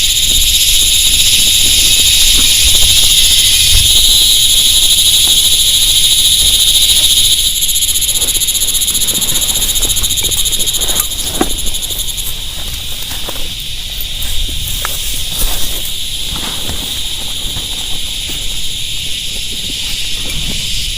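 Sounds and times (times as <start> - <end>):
frogs and insects trilling: 0.0 - 20.9.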